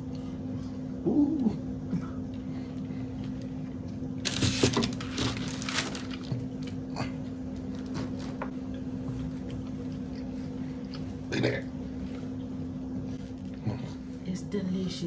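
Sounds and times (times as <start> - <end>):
steady low hum: 0.0 - 15.0
chewing and mouth sounds: 6.2 - 12.6.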